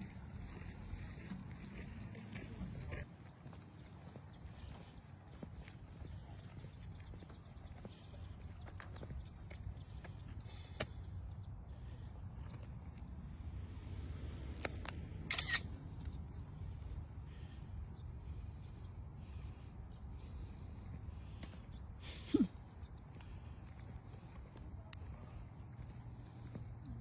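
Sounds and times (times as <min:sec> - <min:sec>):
high bird chirps: 0:14.6 - 0:27.0.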